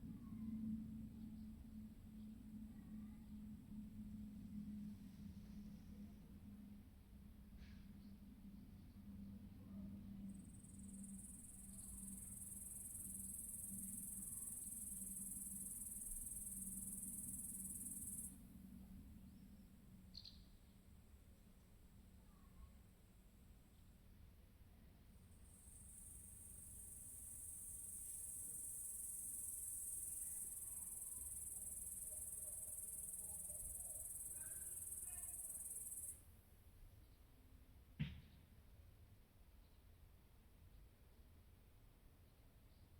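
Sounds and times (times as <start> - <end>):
insect high-pitched trill: 10.4 - 18.3, 25.6 - 36.2
faint bird chirps: 19.3 - 20.8, 22.2 - 22.8, 29.4 - 36.2.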